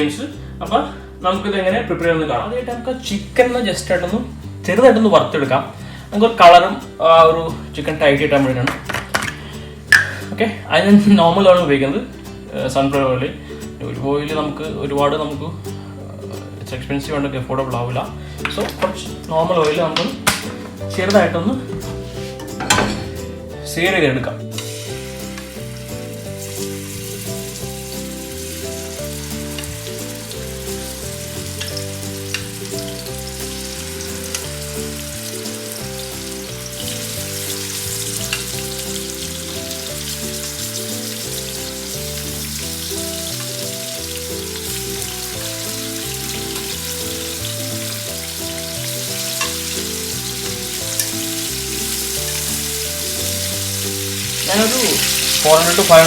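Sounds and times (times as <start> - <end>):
background music: 0.0 - 56.0
chicken sizzling in hot oil: 24.5 - 56.0.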